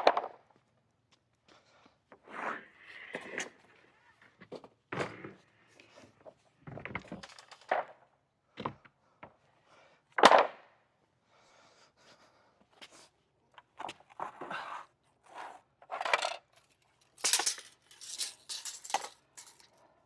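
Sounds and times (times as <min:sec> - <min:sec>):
boards being handled: 0:17.2 - 0:19.7.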